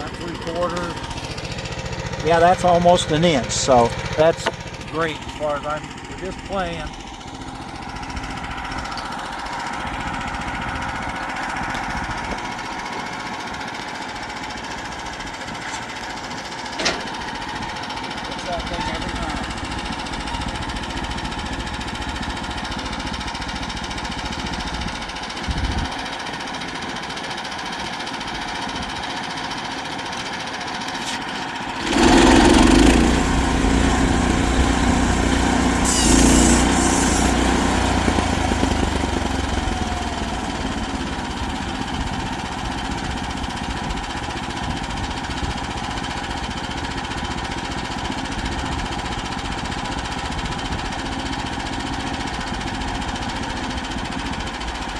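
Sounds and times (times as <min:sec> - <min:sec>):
sawmill engine running: 0:00.0 - 0:54.9.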